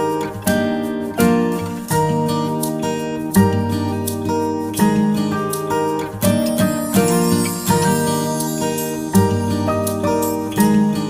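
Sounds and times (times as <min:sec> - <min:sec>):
acoustic guitar background music: 0:00.0 - 0:11.0.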